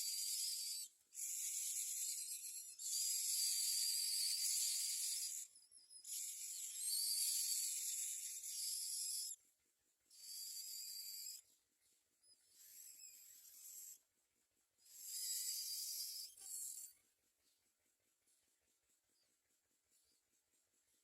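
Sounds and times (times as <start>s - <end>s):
raspy hissing bird begging calls: 0.0s - 9.4s, 10.2s - 11.4s, 12.5s - 14.0s, 14.8s - 16.9s.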